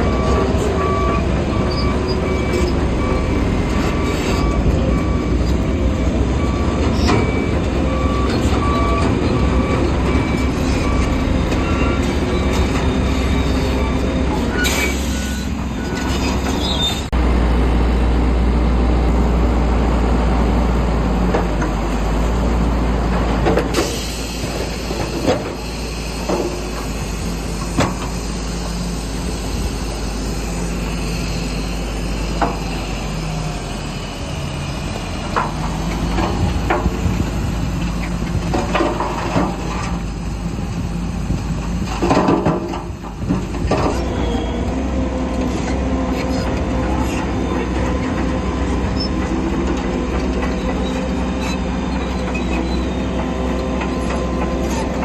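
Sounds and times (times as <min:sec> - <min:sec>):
steel tracks squealing: 0:00.0 - 0:17.1, 0:43.7 - 0:55.0
bulldozer diesel engine running: 0:00.0 - 0:55.0
metallic clanks from steel tracks: 0:23.2 - 0:29.8, 0:45.4 - 0:55.0.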